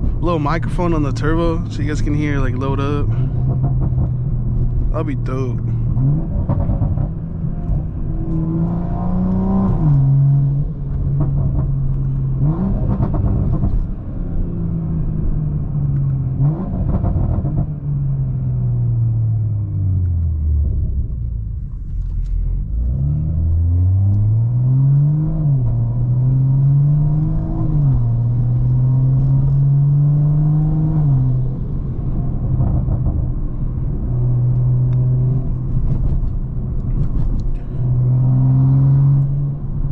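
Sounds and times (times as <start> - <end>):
car engine revving through gears: 5.8 - 17.9, 22.7 - 39.9.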